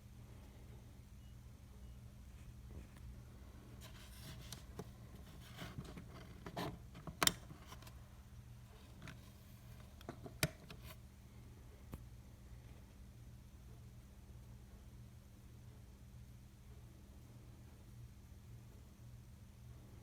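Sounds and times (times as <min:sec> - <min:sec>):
low steady hum: 0:00.0 - 0:20.0
handling rustles and clicks: 0:03.8 - 0:08.0.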